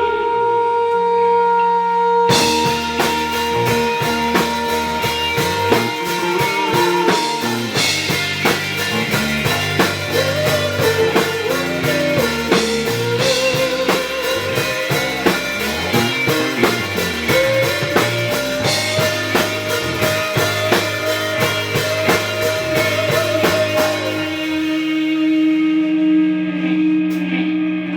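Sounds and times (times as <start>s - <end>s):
rock band playing: 2.3s - 25.9s
bending lead guitar line: 2.3s - 26.0s.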